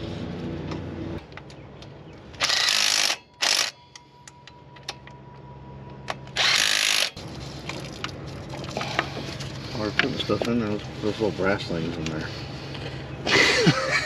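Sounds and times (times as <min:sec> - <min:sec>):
power tool bursts: 0:02.4 - 0:03.8, 0:06.4 - 0:07.2.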